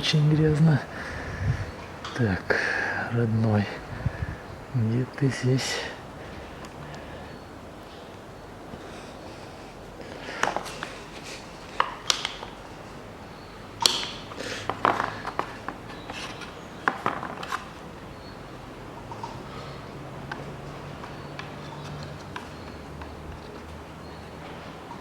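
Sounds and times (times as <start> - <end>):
hand tools tapping engine parts: 10.0 - 25.0.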